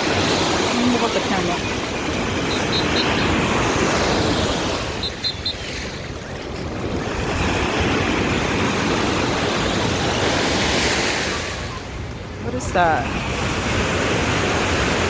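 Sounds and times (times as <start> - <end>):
ocean surf breaking: 0.0 - 15.0.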